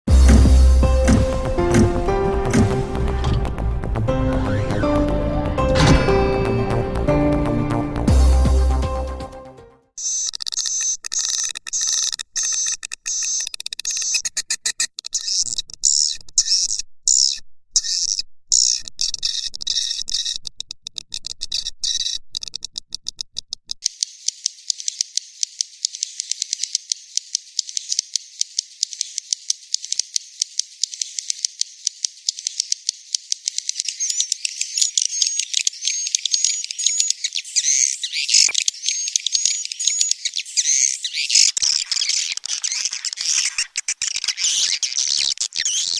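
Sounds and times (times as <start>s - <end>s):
swiftlet twittering and chirps: 10.0s - 20.4s, 23.8s - 45.9s.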